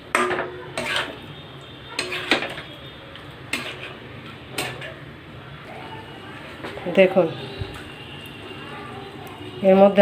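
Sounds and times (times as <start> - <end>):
metal spoon scraping a pot: 0.2 - 1.3, 1.9 - 2.7, 3.5 - 5.0.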